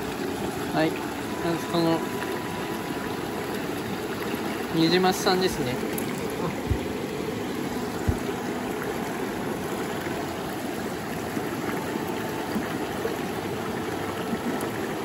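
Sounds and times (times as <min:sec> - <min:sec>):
stream water running: 0:00.0 - 0:15.0
soft low thumps: 0:06.4 - 0:07.0, 0:07.9 - 0:08.3.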